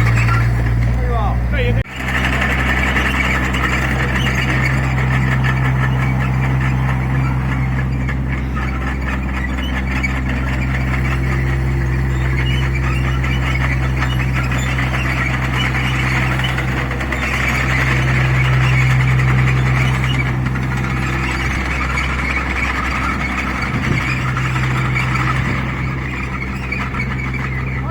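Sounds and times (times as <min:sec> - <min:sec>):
excavator engine drone: 0:00.0 - 0:27.9
high squeal: 0:02.0 - 0:27.9.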